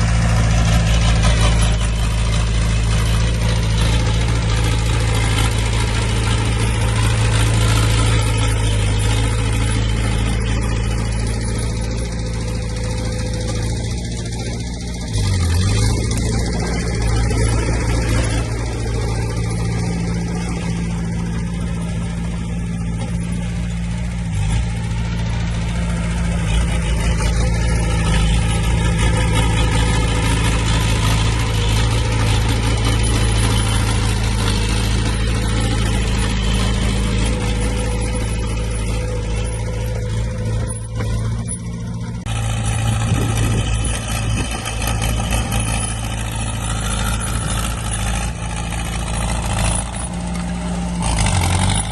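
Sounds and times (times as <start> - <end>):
heavy machinery diesel engines: 0.0 - 51.9.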